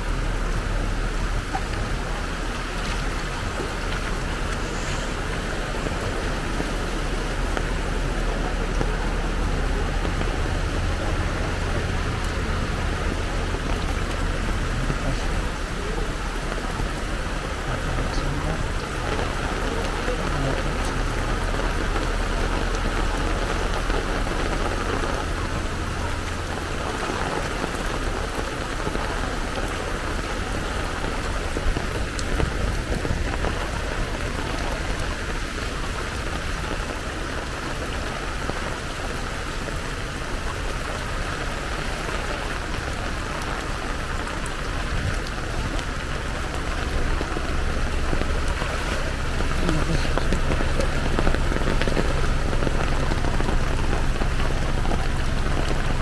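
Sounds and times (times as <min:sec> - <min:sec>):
heavy rain falling: 0:00.0 - 0:56.0
low rumble: 0:40.9 - 0:56.0.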